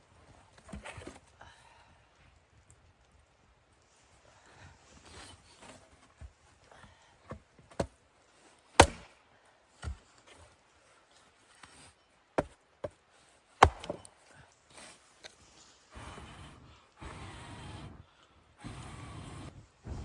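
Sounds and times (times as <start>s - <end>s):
wood being chopped: 8.8s - 9.2s, 12.4s - 13.0s, 13.6s - 14.1s.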